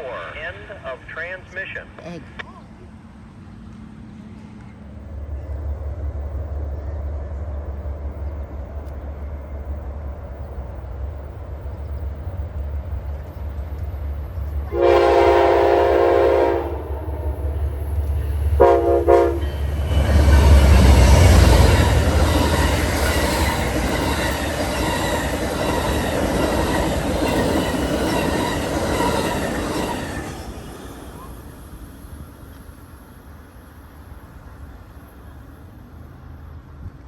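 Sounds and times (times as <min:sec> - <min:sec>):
train horn blasts: 0:14.7 - 0:17.6, 0:18.6 - 0:20.5
train wheels clattering: 0:17.6 - 0:31.1.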